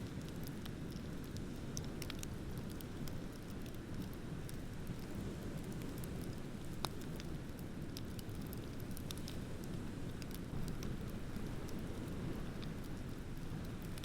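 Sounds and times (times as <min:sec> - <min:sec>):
bonfire crackling and popping: 0:00.0 - 0:14.0.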